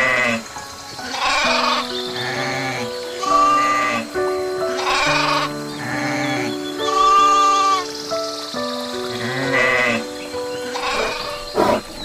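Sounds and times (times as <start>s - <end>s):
background music with sustained notes: 0.0s - 12.0s
sheep bleating: 4.8s - 7.8s.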